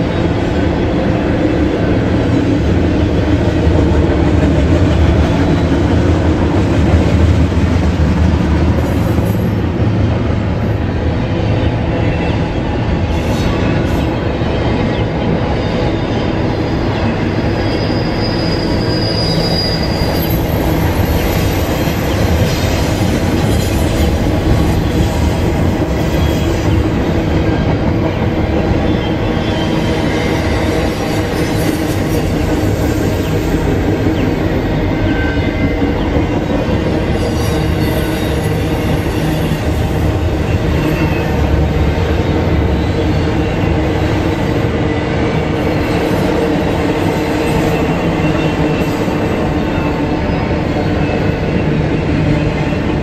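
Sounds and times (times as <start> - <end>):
faint high wheel squeal: 17.3 - 22.2.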